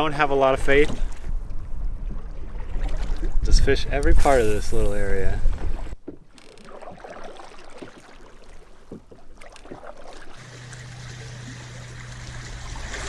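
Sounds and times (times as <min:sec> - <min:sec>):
paddle knocks and splashes: 0:00.0 - 0:03.6, 0:05.3 - 0:13.0
water sloshing: 0:00.0 - 0:13.0.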